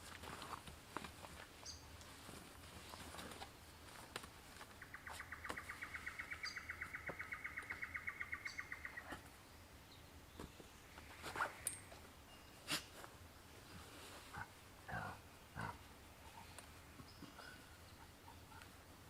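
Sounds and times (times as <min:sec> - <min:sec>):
bird trilling: 0:04.8 - 0:09.2.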